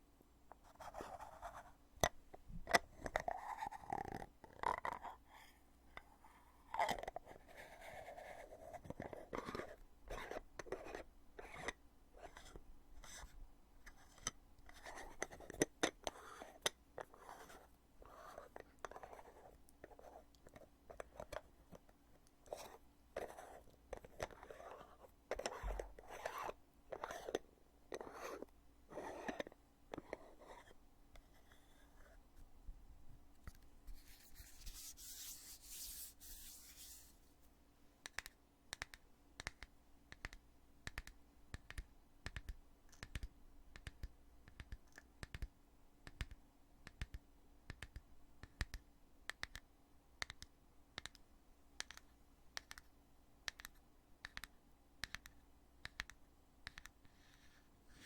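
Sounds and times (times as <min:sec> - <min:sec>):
light sharp clicks and taps: 0:38.0 - 0:52.9, 0:53.5 - 0:57.2.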